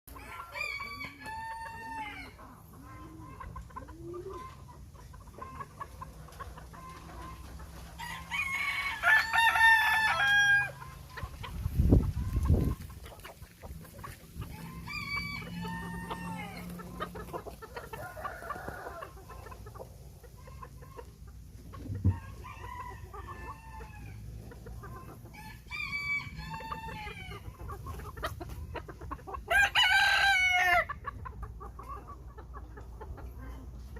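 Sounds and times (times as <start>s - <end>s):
roosters crowing: 0.1s - 4.6s, 5.3s - 11.3s, 14.0s - 19.8s, 21.7s - 28.3s, 29.0s - 31.2s
chickens clucking: 0.1s - 33.9s.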